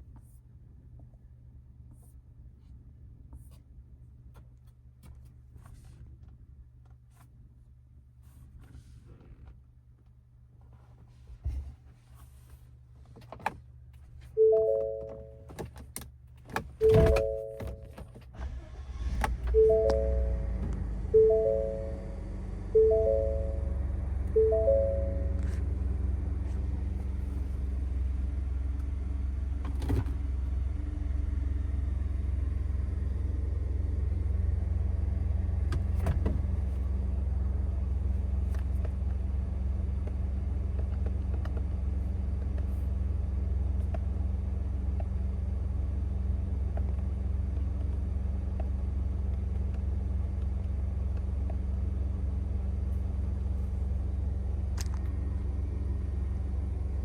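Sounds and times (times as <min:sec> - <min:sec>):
truck engine idling: 0:18.4 - 0:29.6.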